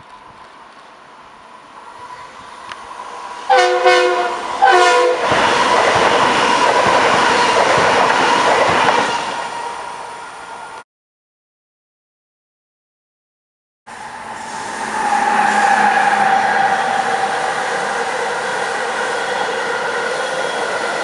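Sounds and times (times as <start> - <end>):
train passing with wheel noise: 0.0 - 10.8, 13.9 - 21.0
train chime horn blasts: 3.5 - 5.2.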